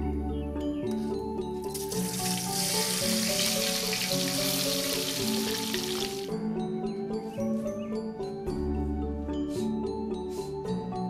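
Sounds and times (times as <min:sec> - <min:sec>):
background music of plucked notes: 0:00.0 - 0:11.0
tofu sizzling in hot oil: 0:01.8 - 0:06.3.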